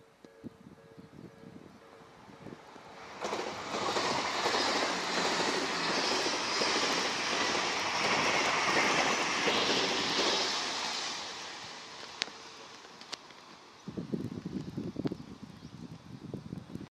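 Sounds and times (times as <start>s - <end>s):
faint crossing warning bell: 0.0s - 2.7s
train rushing past: 2.0s - 14.6s.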